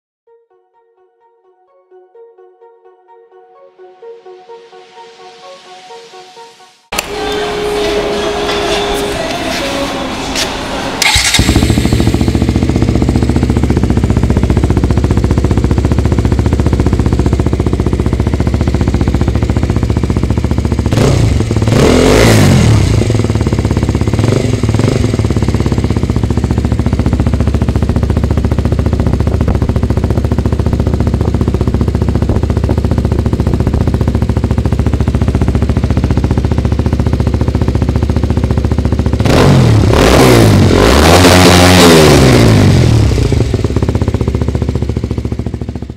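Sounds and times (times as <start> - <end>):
motorcycle engine idling and revving: 6.9 - 45.9.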